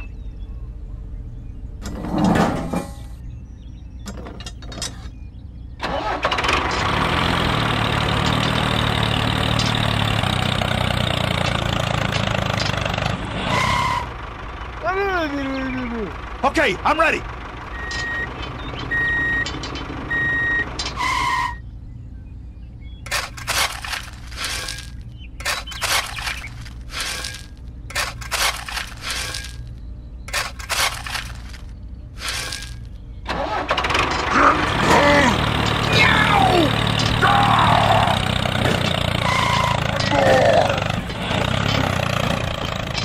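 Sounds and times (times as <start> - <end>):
low engine hum: 0.0 - 43.0
noisy engine with sliding squeals: 0.0 - 43.0
stones clattering into plastic trailer: 23.1 - 29.7, 30.3 - 32.9.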